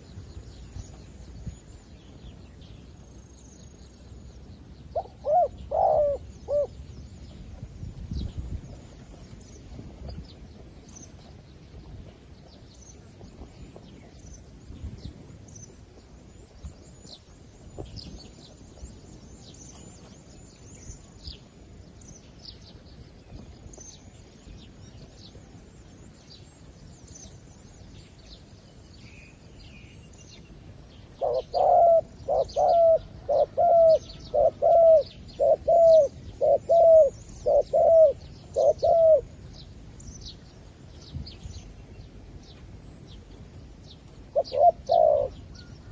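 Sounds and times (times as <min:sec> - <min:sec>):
dove cooing: 0:04.9 - 0:06.8, 0:31.2 - 0:39.4, 0:44.2 - 0:45.9.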